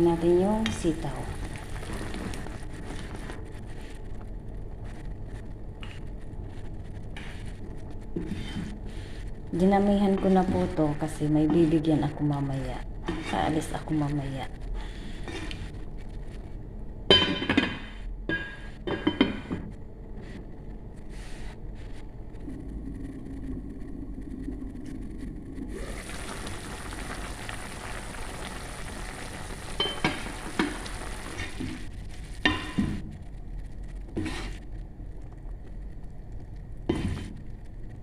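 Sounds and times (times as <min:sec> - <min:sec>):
pan sizzling: 0:00.0 - 0:03.6, 0:25.6 - 0:33.0.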